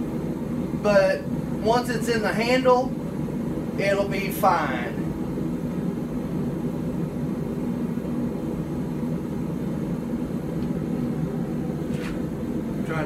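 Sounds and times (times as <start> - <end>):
forge roaring: 0.6 - 13.0.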